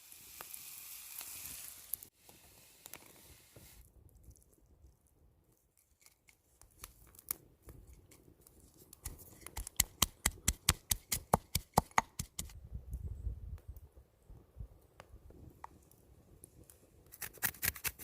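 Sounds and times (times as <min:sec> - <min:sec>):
sharp regular taps: 0:09.6 - 0:12.5.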